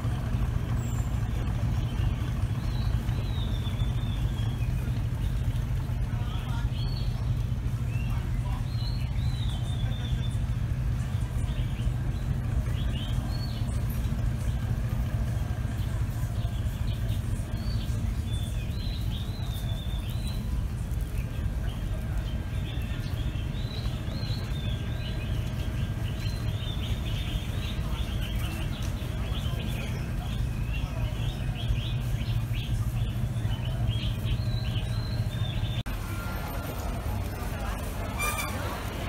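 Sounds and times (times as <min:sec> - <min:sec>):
low rumble: 0:00.0 - 0:39.0
small birds chirping: 0:00.0 - 0:39.0.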